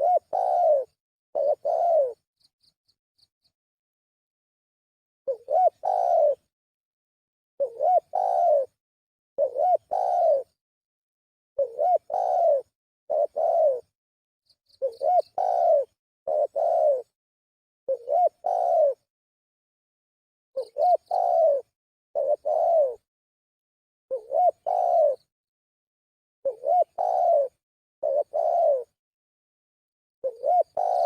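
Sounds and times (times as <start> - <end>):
dove cooing: 0.0 - 2.2, 5.3 - 6.5, 7.6 - 8.8, 9.4 - 10.6, 11.6 - 13.9, 14.8 - 17.1, 17.9 - 19.1, 20.6 - 23.1, 24.1 - 25.3, 26.4 - 29.0, 30.2 - 31.0.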